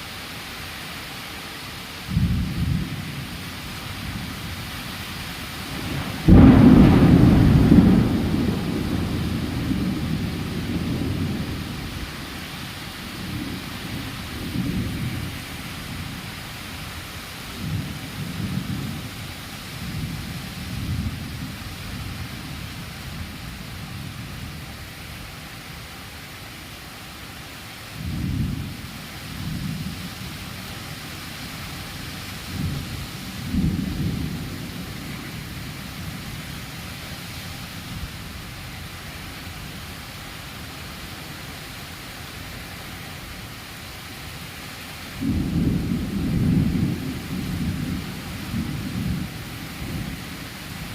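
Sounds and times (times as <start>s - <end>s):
rain hiss: 0.0s - 50.9s
thunder rumble: 5.6s - 16.3s, 32.3s - 36.5s, 45.2s - 50.3s.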